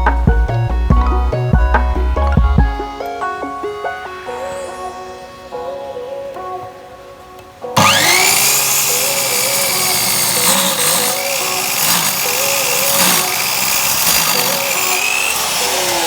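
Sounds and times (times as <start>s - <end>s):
background music: 0.0s - 16.0s
electric saw motor whining: 7.8s - 16.0s.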